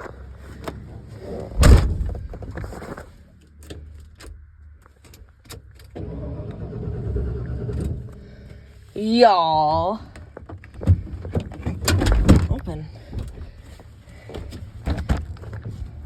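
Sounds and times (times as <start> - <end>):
truck door slamming: 1.6 - 2.2.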